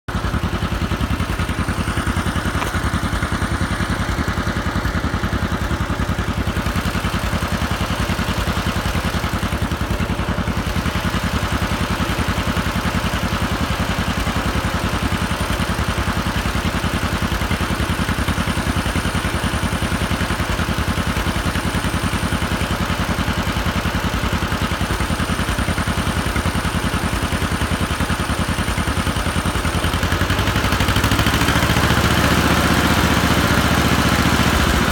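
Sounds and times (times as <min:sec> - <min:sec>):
old vehicle engine running: 0:00.1 - 0:34.9.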